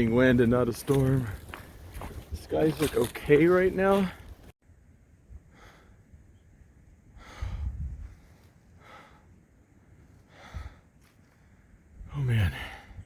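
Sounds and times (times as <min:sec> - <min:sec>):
person breathing hard: 0:05.5 - 0:06.0, 0:07.1 - 0:09.4, 0:10.2 - 0:11.7
wind gust on microphone: 0:07.2 - 0:08.3.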